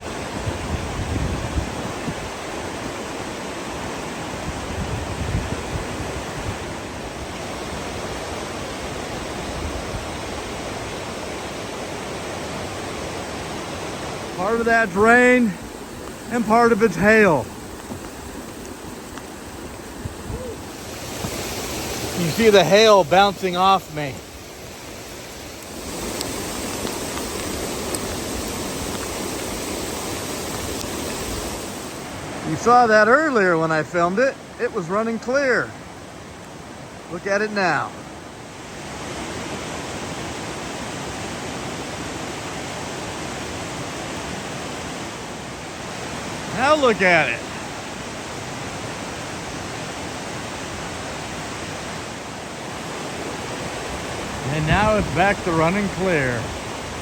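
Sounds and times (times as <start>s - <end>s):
rain and running water: 0.0s - 57.0s
heavy rain and hail: 14.2s - 32.6s, 53.4s - 57.0s
hailstones ticking: 17.6s - 20.0s, 25.6s - 31.1s.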